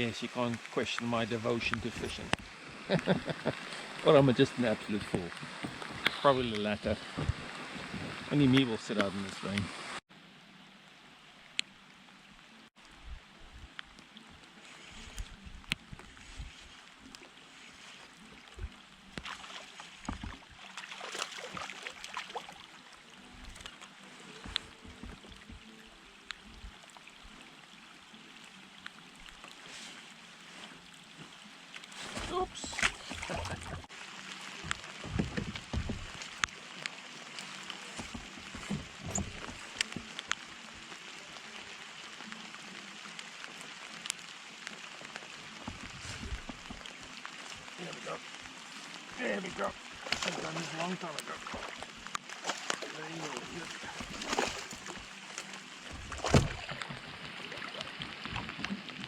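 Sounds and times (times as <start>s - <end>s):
raindrops dripping and clicking: 0.0s - 10.0s, 11.4s - 59.0s
small water splashes: 0.0s - 10.0s, 12.2s - 59.0s
rain hissing on a lake: 0.0s - 59.0s
low knocks of kayak hull: 20.0s - 20.5s, 34.6s - 36.4s, 55.9s - 57.3s
soft low thumps: 34.6s - 36.4s.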